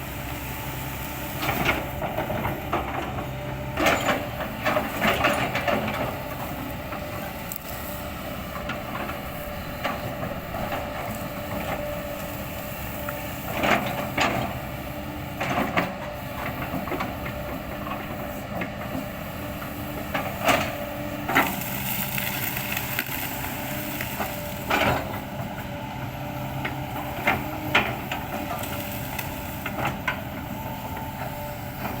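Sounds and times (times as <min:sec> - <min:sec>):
excavator engine running: 0:00.0 - 0:32.0.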